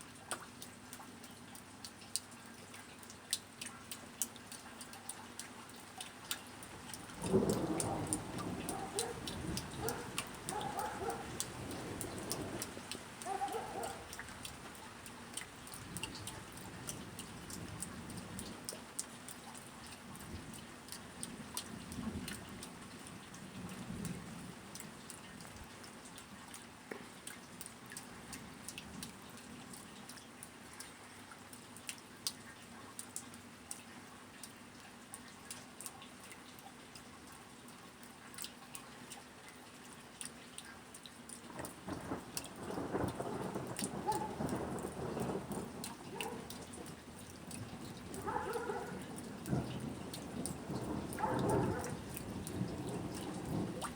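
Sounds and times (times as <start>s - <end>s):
rain falling: 0.0s - 53.9s
drops ticking on hard surface: 3.3s - 19.4s, 41.6s - 46.9s
distant thunder rolling: 7.2s - 14.1s, 41.6s - 53.9s.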